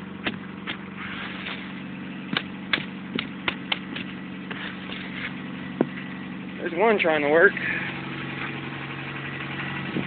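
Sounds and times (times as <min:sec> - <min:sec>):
car engine idling: 0:00.0 - 0:10.0
sharp irregular clicks and knocks: 0:02.3 - 0:04.1.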